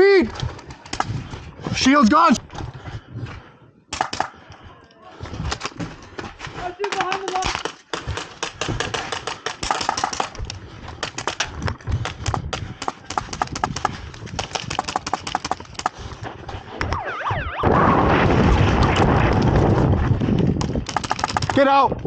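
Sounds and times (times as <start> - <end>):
airsoft guns firing: 3.9 - 4.4, 6.9 - 10.4, 12.2 - 16.0, 20.7 - 21.6
loud rushing noise: 16.9 - 20.2.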